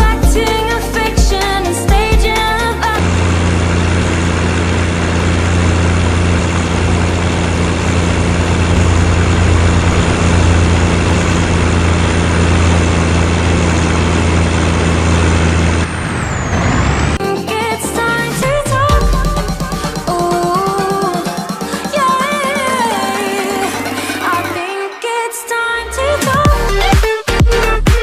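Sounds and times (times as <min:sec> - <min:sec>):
music: 0:00.0 - 0:03.0, 0:17.2 - 0:28.0
truck diesel engine running: 0:00.0 - 0:25.0.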